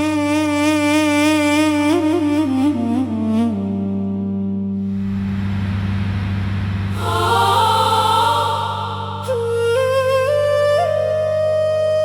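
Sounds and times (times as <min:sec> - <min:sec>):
flute-like wind instrument melody: 0:00.0 - 0:04.8, 0:08.1 - 0:12.0
low drone: 0:04.8 - 0:10.7.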